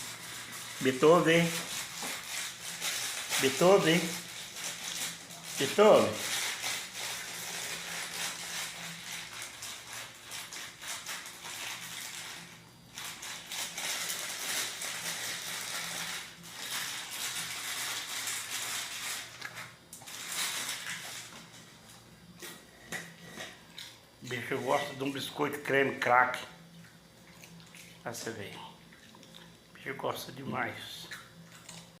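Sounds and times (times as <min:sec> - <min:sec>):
faint steady hum: 0:00.0 - 0:32.0
dog crunching biscuits: 0:00.1 - 0:25.8, 0:26.8 - 0:29.9.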